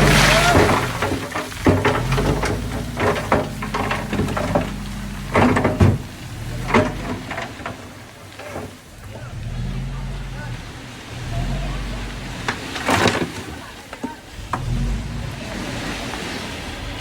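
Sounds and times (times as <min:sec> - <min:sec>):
loud knocks and clatters: 0:00.0 - 0:09.2
vehicle engine running low: 0:00.0 - 0:17.0.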